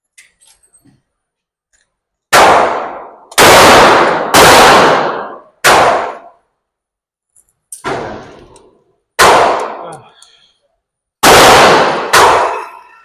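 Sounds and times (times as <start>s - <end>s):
handgun shots ringing indoors: 2.3s - 6.4s, 9.2s - 9.8s, 11.2s - 13.0s.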